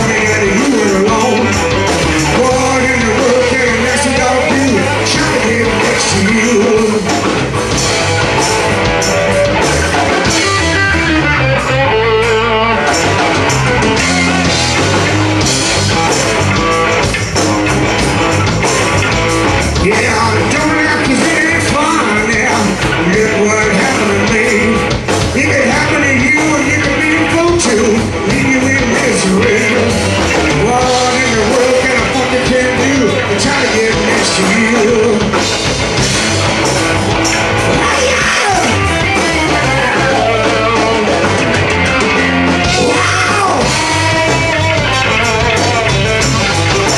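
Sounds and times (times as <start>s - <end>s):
person singing: 0.0s - 7.4s, 19.8s - 35.5s, 37.7s - 41.5s, 42.5s - 46.1s
electric guitar: 0.0s - 46.9s
steady drum beat: 0.0s - 46.9s.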